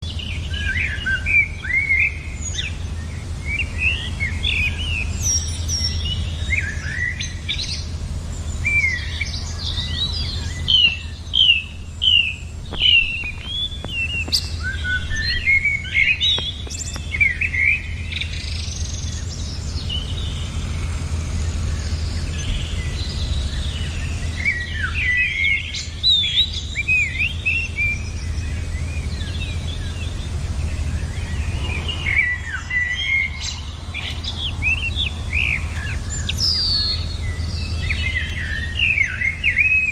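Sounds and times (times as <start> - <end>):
small birds chirping: 0.0 - 39.9
low rumble: 2.2 - 38.7.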